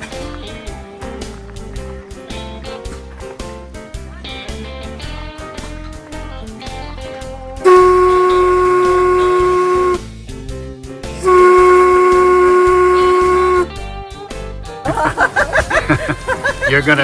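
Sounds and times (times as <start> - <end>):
guitar music: 0.0 - 10.1, 11.1 - 14.3
steam whistle blasts: 7.6 - 10.1, 11.2 - 13.8.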